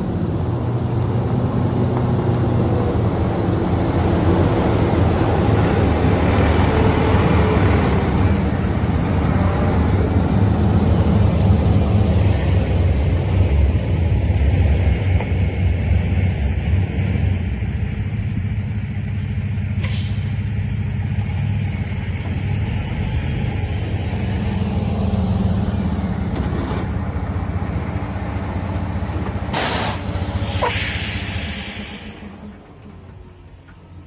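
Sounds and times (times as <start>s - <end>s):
truck engine rumbling: 0.0s - 34.0s
air brake hisses: 19.8s - 20.4s, 29.5s - 32.6s.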